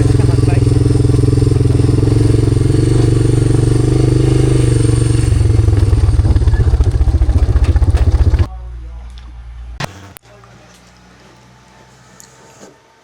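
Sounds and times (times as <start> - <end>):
vehicle engine running: 0.0 - 9.8.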